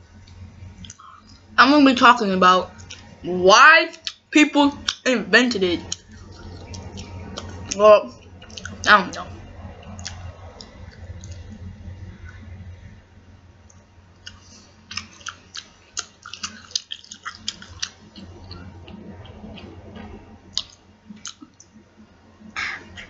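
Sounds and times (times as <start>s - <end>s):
wet chewing mouth clicks: 8.4s - 8.8s, 14.2s - 19.0s.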